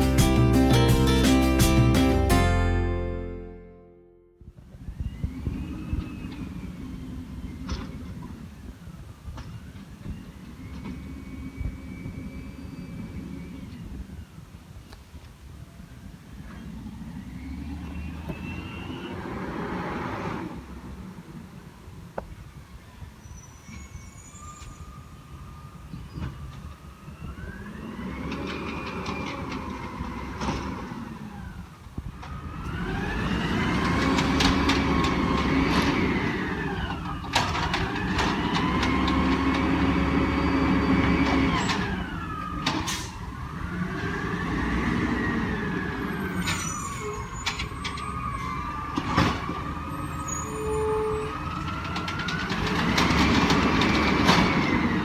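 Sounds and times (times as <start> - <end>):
hydraulic whine: 4.4 - 14.2, 23.2 - 55.0
truck engine revving: 32.3 - 55.0.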